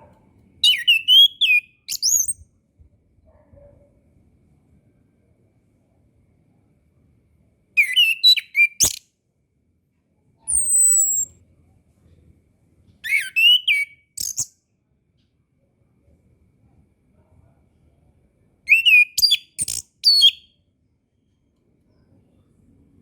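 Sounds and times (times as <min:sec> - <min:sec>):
thrush singing whistled notes: 0:00.6 - 0:02.4, 0:13.1 - 0:14.5, 0:18.7 - 0:20.5.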